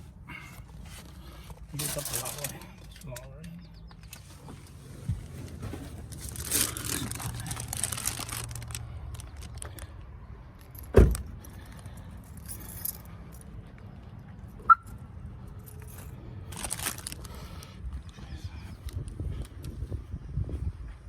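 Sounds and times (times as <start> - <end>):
car door thudding shut: 10.9 - 11.3
keys jingling: 12.2 - 13.6
car lock chirp: 14.6 - 15.0.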